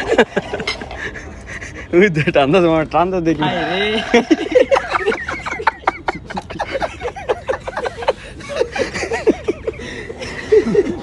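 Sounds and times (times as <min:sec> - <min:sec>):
group of people laughing: 0:00.0 - 0:02.2, 0:03.4 - 0:11.0
people chattering: 0:01.7 - 0:06.8.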